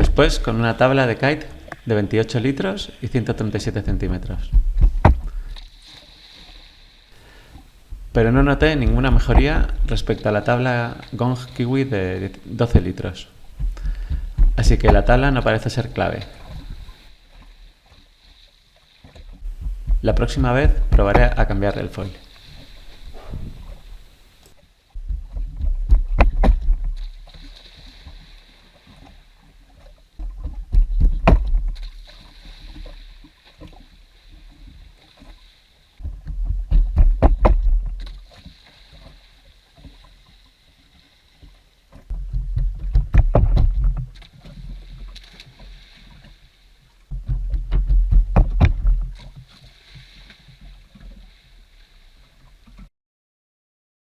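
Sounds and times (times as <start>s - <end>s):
water splashing and sloshing: 0.0s - 52.9s
deep rumble: 3.8s - 5.6s, 7.2s - 10.6s, 11.4s - 17.1s, 19.5s - 24.4s
sharp knocks: 3.9s - 5.6s, 7.2s - 10.2s, 12.7s - 17.1s, 19.5s - 24.4s.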